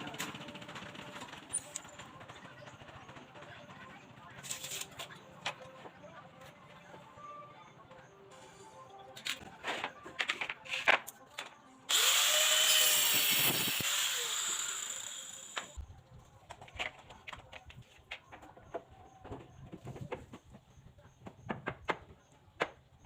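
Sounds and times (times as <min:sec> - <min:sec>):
handheld power tool running: 0:11.9 - 0:15.8
knocks of wood and tools: 0:21.2 - 0:22.8.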